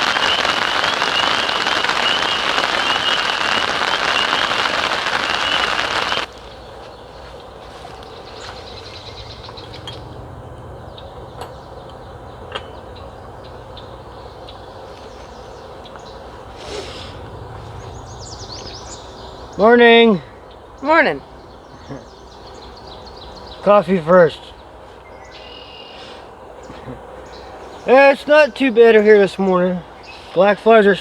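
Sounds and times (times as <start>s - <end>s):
heavy rain: 0.0s - 6.4s.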